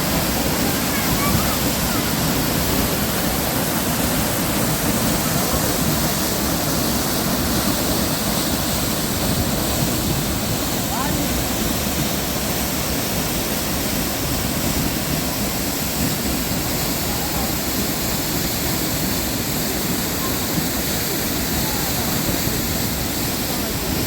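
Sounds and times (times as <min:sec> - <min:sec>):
waterfall roar: 0:00.0 - 0:24.0.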